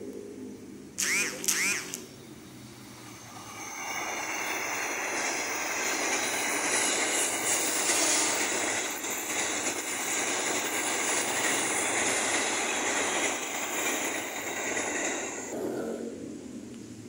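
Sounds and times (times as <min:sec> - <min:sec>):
train wheels clattering on rails: 0:03.0 - 0:15.6.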